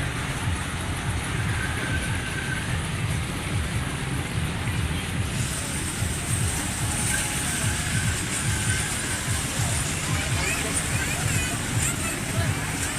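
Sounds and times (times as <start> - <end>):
ride machinery rumbling: 0.0 - 12.9
hiss: 5.3 - 12.9.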